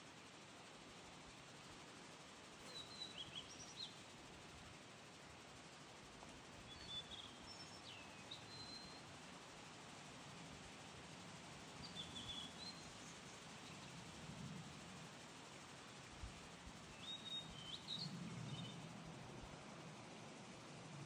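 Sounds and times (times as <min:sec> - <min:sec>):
bird chirping: 0:06.7 - 0:09.0, 0:11.8 - 0:13.9, 0:16.9 - 0:18.9.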